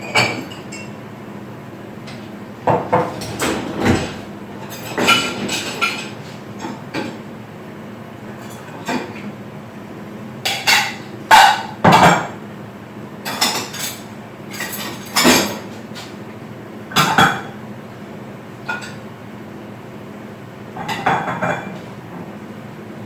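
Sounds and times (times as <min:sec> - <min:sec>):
dishes and utensils clinking: 0:02.8 - 0:07.2, 0:13.2 - 0:16.1.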